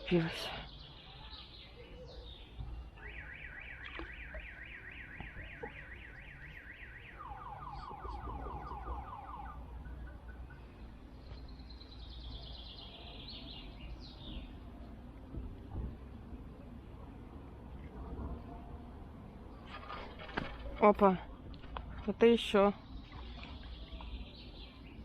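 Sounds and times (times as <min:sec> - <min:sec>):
distant car alarm whooping: 0:02.9 - 0:10.9.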